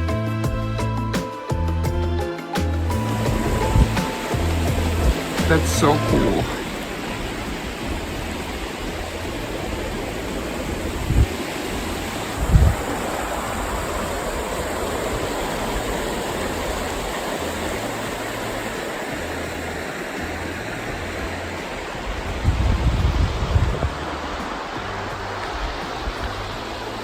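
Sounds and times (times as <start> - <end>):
dull low thumps: 0.0 - 6.5
river water rushing: 0.8 - 27.0.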